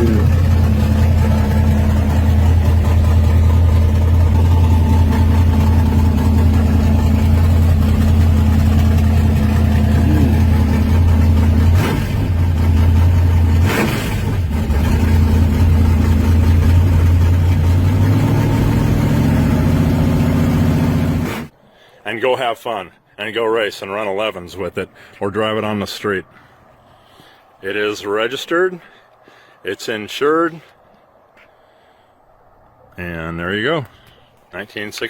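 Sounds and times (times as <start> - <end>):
car engine idling: 0.0 - 21.5.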